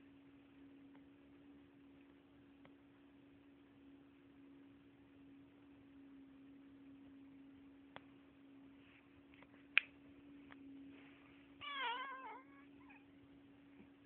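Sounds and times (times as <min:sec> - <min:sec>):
steady low hum: 0:00.0 - 0:14.0
cat mewing: 0:11.6 - 0:13.1.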